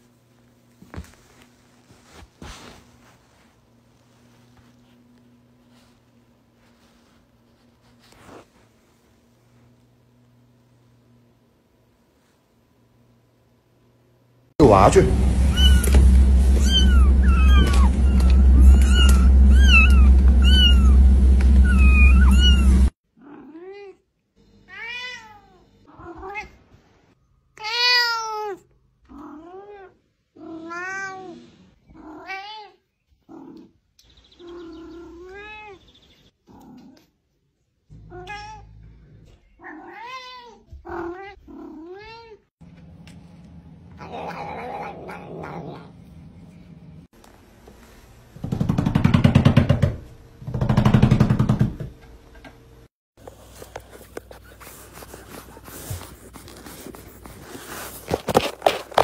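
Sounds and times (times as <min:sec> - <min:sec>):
steady low hum: 0:00.0 - 0:22.9
cat meowing: 0:15.5 - 0:16.0, 0:16.6 - 0:21.0, 0:21.6 - 0:24.0, 0:27.6 - 0:31.4, 0:38.0 - 0:38.7.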